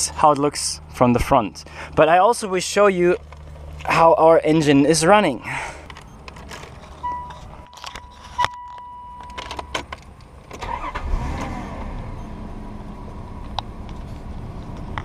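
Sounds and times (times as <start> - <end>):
car engine cranking and idling: 0.0 - 15.0
ignition clicks: 5.8 - 12.2
steady warning tone: 6.0 - 9.4.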